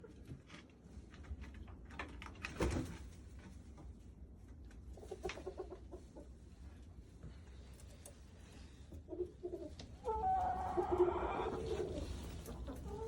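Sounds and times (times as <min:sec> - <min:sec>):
chickens clucking: 0:05.0 - 0:06.4, 0:08.9 - 0:13.0.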